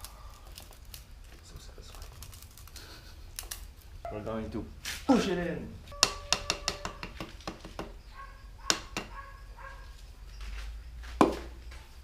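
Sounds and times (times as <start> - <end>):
sharp metal taps with ringing: 6.0 - 8.0.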